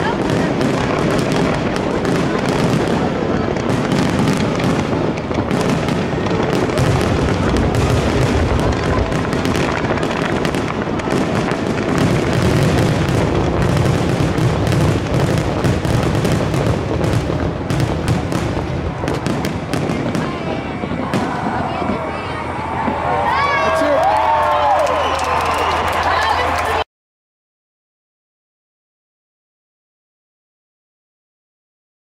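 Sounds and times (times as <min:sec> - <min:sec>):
firework shell bursts and crackles: 0:00.0 - 0:23.0
deep rumble of booms: 0:00.2 - 0:23.1.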